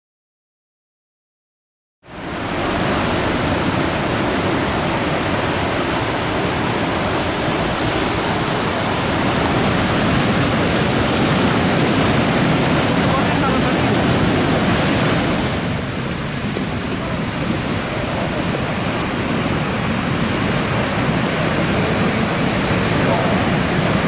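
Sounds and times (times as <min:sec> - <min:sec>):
rushing river water: 0:02.1 - 0:24.0.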